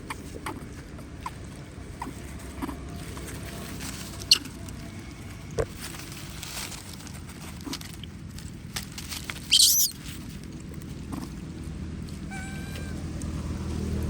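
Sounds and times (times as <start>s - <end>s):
monkey squeak: 9.5s - 10.0s, 12.3s - 13.0s.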